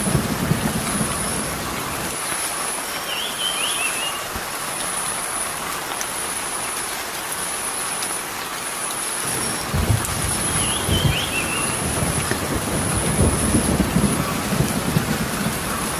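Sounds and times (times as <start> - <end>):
rushing outdoor hiss: 0.0 - 15.9.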